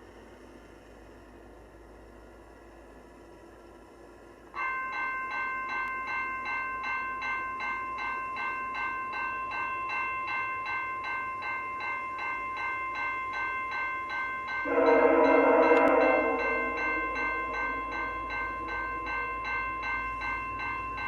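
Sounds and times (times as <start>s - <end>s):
level crossing warning bell: 4.3s - 21.0s.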